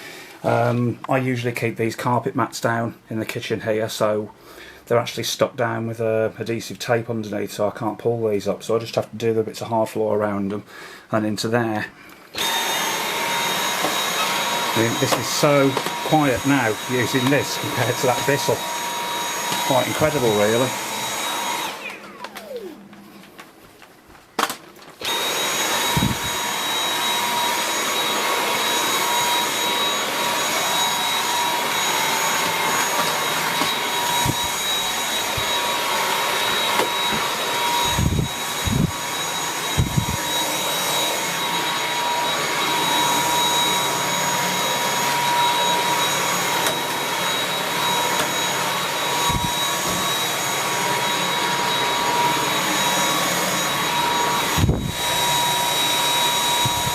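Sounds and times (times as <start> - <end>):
stick vacuum running: 12.4 - 23.4, 24.4 - 56.9.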